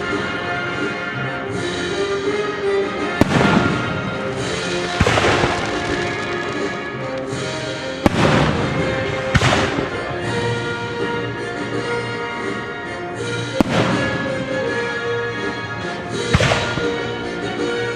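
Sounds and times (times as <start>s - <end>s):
orchestral music: 0.0s - 17.9s
fireworks bangs with hiss: 3.2s - 10.6s, 13.6s - 14.5s, 16.2s - 17.0s.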